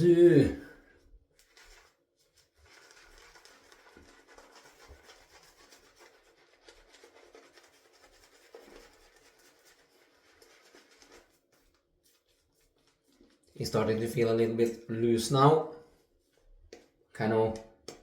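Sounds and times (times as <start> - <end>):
shaving brush swishing lather: 1.4 - 14.8.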